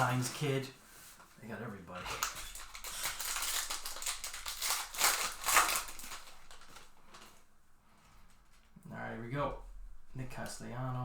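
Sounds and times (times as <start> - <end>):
wrapper tearing and crinkling: 0.0 - 0.5, 2.0 - 7.5.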